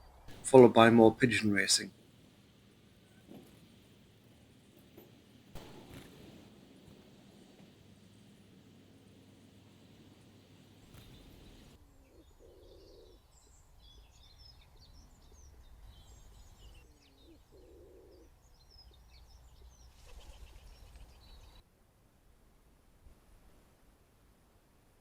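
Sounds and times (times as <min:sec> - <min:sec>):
small birds chirping: 0:00.0 - 0:21.6
pigeon cooing: 0:10.9 - 0:13.2, 0:16.9 - 0:18.3.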